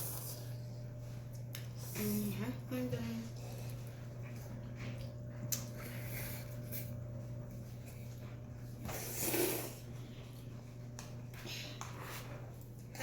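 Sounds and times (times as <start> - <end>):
steady low hum: 0.0 - 13.0
noodles being slurped: 8.8 - 10.0.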